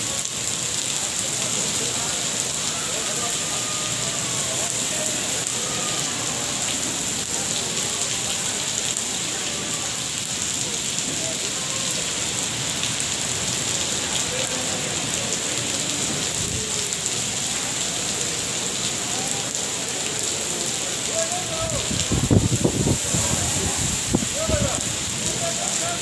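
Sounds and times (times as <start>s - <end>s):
steady rain hissing: 0.0s - 26.0s.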